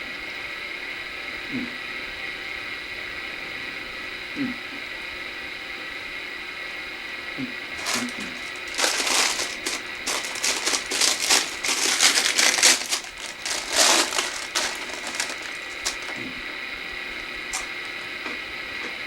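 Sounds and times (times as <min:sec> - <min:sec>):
paper bag crinkling: 0:07.8 - 0:16.2.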